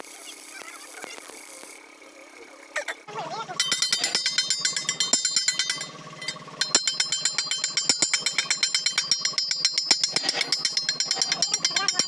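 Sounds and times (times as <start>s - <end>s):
metal-on-metal striking with ringing: 3.6s - 12.0s.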